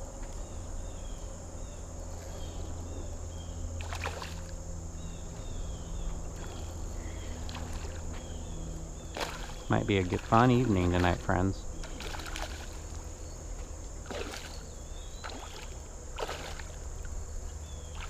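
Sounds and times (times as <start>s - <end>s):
high insect drone: 0.0s - 18.0s
water sloshing and splashing: 3.8s - 4.6s, 7.3s - 8.4s, 9.0s - 18.0s.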